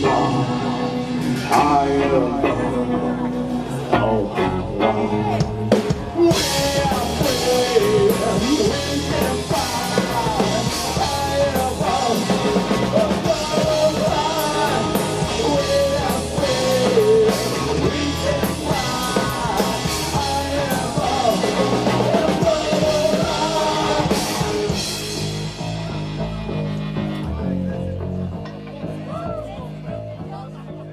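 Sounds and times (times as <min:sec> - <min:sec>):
bending lead guitar melody: 0:00.0 - 0:30.9
rock band playing live: 0:00.0 - 0:30.9.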